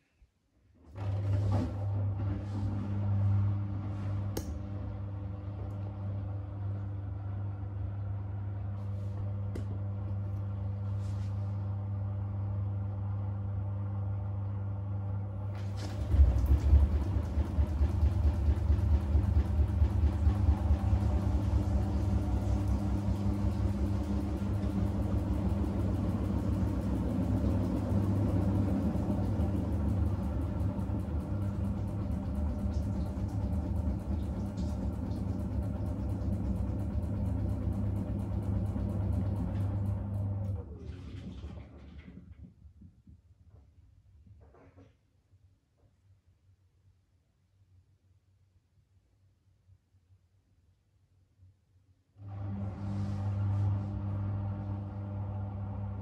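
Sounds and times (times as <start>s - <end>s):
washing machine motor hum: 0.8s - 42.7s, 52.2s - 56.0s
washing machine drum spinning: 14.8s - 42.5s, 52.3s - 56.0s.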